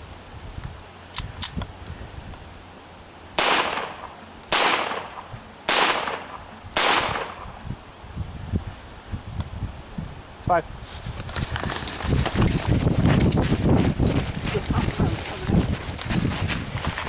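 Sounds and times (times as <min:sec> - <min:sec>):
rifle shots with echo: 0:03.4 - 0:07.6.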